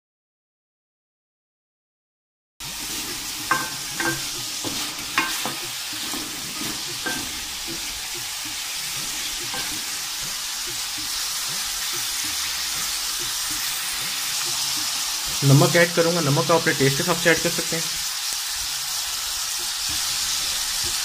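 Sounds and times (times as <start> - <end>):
wooden spoon scraping a pan: 2.6 - 17.0
chicken sizzling in a pan: 2.6 - 21.0.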